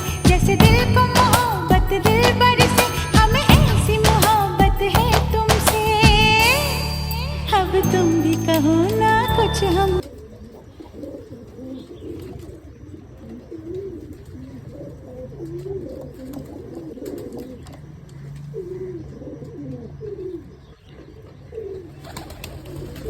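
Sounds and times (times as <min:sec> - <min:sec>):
pigeons cooing: 0:10.0 - 0:23.0.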